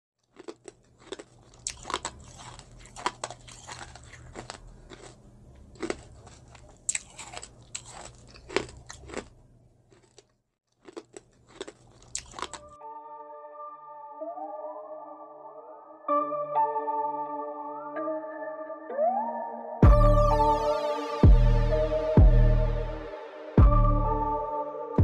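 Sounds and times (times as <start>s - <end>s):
biting and chewing crunches: 0.2s - 12.8s.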